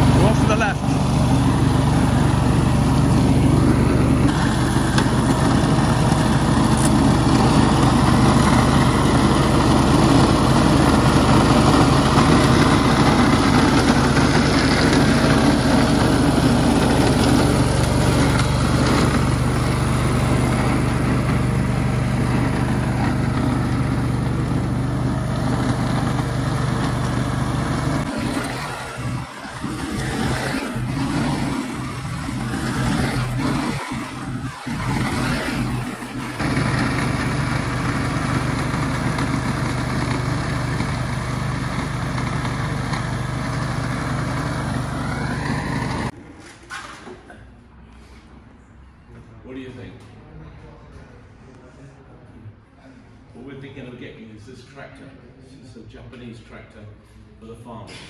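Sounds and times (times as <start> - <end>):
vehicle engine humming: 0.0 - 46.2.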